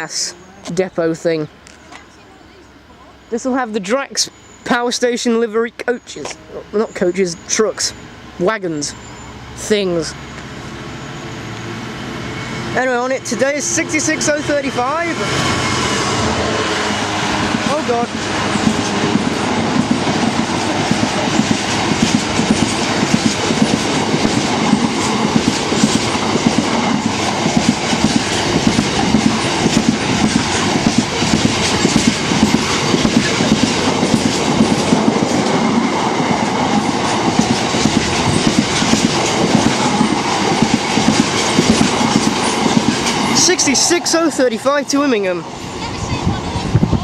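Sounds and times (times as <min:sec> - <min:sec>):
train wheels clattering over rail joints: 0:15.3 - 0:44.4.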